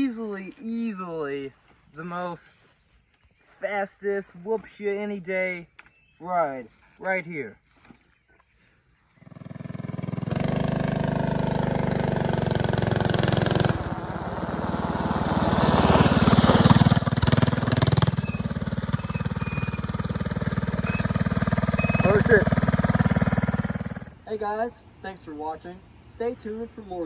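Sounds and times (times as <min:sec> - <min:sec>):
small motorbike engine running: 0:09.2 - 0:24.2.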